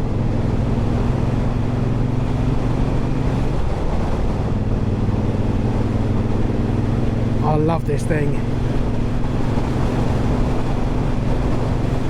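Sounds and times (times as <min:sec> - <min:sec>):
motorcycle engine cruising: 0:00.0 - 0:12.0
road noise: 0:00.0 - 0:12.0.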